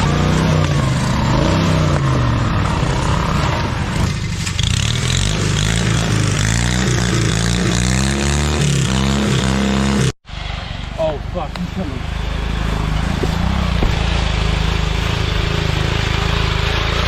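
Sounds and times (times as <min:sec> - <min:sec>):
lawn tractor engines revving: 0:00.0 - 0:17.0
constant noisy rush: 0:10.3 - 0:17.0.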